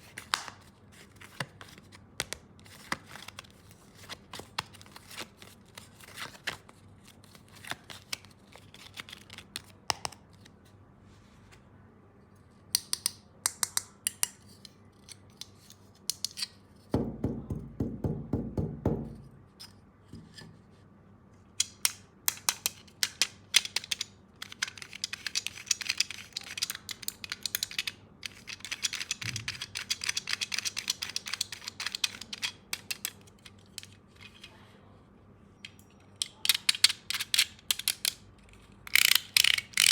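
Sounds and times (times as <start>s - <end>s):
plastic toy tools clicking: 21.6s - 34.0s, 36.2s - 39.9s.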